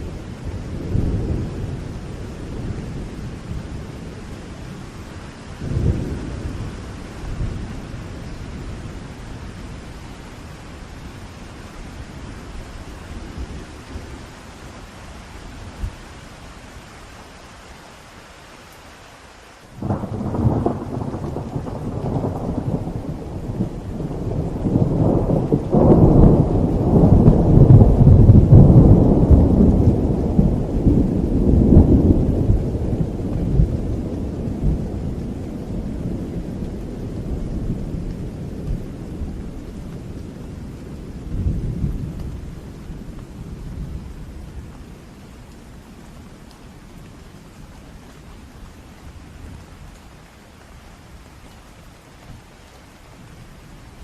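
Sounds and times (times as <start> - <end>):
steady rain: 0.0 - 54.0
thunder rolling: 19.8 - 39.5.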